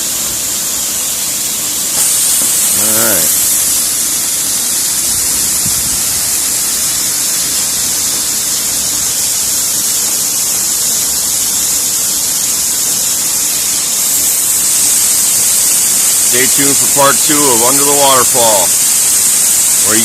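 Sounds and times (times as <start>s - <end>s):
waterfall crashing: 0.0s - 20.0s.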